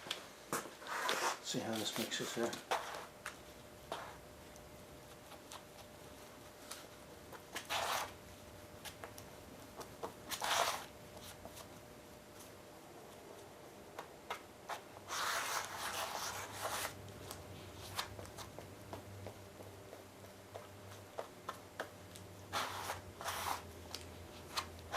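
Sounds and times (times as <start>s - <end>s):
spreader scraping body filler: 22.5s - 23.6s.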